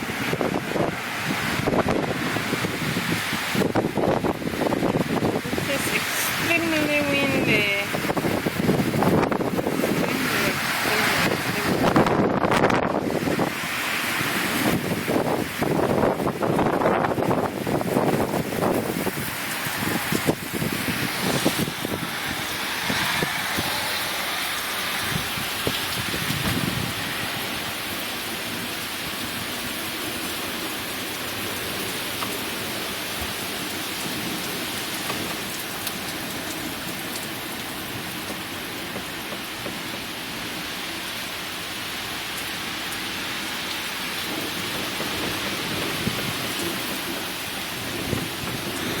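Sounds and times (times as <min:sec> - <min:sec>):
heavy rain falling: 0:00.0 - 0:49.0
low thunder rumbles: 0:14.2 - 0:29.8, 0:44.2 - 0:49.0.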